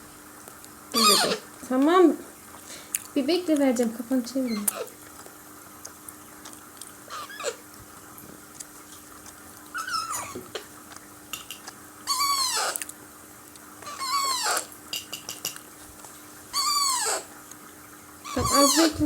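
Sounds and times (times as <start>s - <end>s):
parakeet chicks begging calls: 1.0s - 1.5s, 4.4s - 5.0s, 7.1s - 7.6s, 9.8s - 10.7s, 11.4s - 12.8s, 13.8s - 15.4s, 16.5s - 17.3s, 18.3s - 19.0s.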